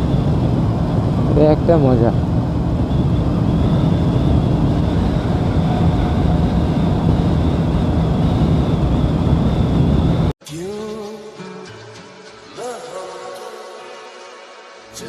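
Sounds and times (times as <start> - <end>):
motorcycle engine cruising: 0.0 - 10.3
wind rushing over microphone: 0.0 - 10.4.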